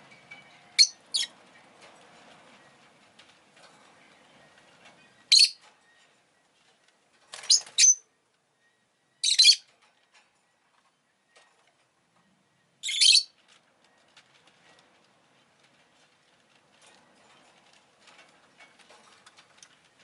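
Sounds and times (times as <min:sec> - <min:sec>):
lovebird chirping: 0:00.4 - 0:01.3, 0:04.5 - 0:06.0, 0:07.4 - 0:09.6, 0:12.5 - 0:13.3.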